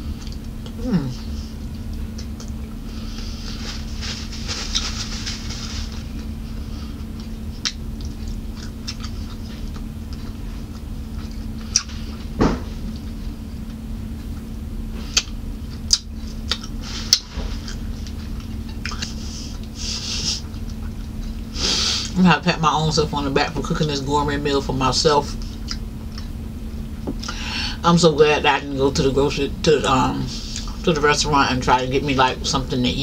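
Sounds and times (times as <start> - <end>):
steady low hum: 0.0 - 33.0
wet chewing and lip smacks: 1.7 - 2.7, 7.2 - 12.2, 15.1 - 19.8, 25.4 - 26.3.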